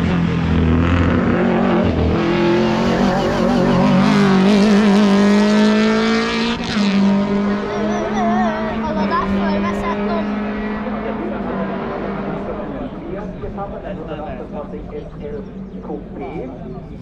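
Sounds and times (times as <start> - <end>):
race car engine accelerating: 0.0 - 13.1.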